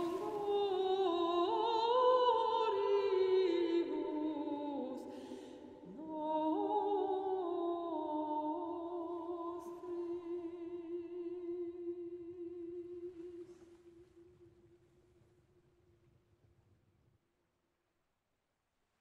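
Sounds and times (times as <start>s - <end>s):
woman singing wordlessly: 0.0s - 14.1s.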